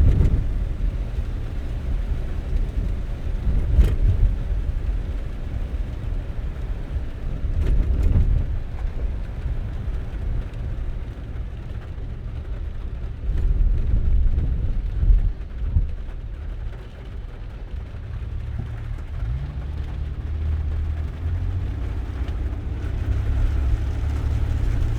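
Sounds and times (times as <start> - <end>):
car road noise rumble: 0.0 - 24.9.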